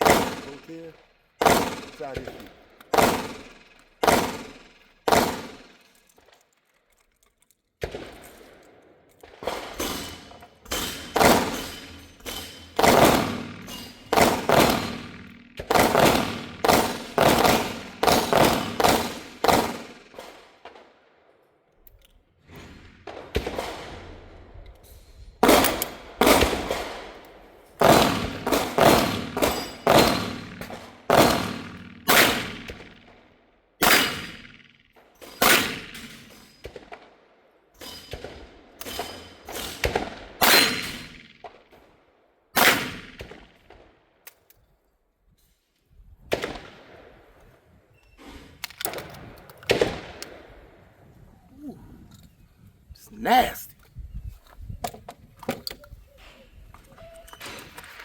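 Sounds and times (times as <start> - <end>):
shotgun gunshots with echo: 0.0 - 5.8, 9.3 - 20.9, 22.6 - 24.3, 25.4 - 27.2, 27.8 - 37.1, 38.1 - 41.7, 42.6 - 43.8.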